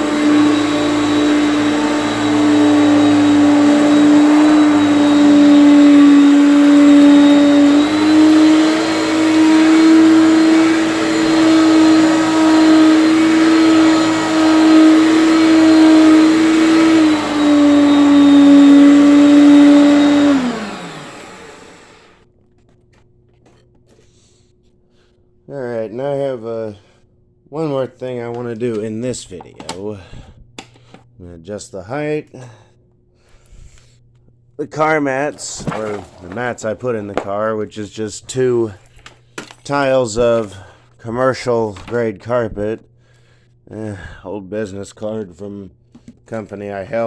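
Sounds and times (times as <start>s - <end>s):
vacuum motor winding down: 0.0s - 22.2s, 35.3s - 37.5s
vacuum cleaner motor whine: 0.0s - 22.3s, 34.8s - 37.6s.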